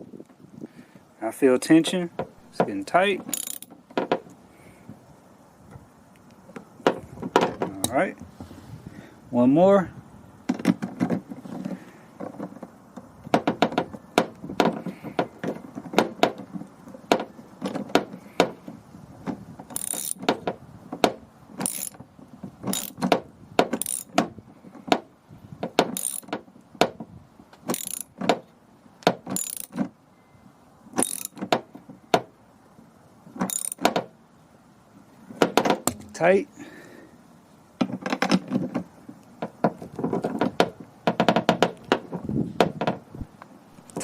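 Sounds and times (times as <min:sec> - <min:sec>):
ratchet wrench clicking: 0:03.3 - 0:03.7, 0:19.7 - 0:20.2, 0:21.6 - 0:22.0, 0:22.7 - 0:23.0, 0:23.8 - 0:24.2, 0:26.0 - 0:26.3, 0:27.7 - 0:28.1, 0:29.3 - 0:29.8, 0:31.0 - 0:31.4, 0:33.5 - 0:33.8.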